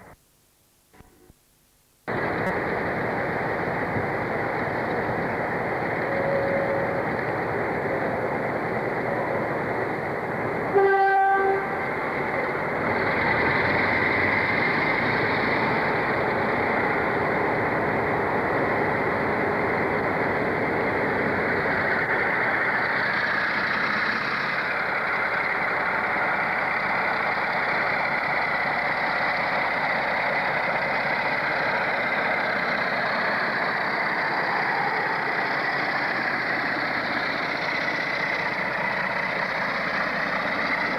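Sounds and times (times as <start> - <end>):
train rumbling on rails: 2.1 - 40.9
train horn note: 10.7 - 11.9.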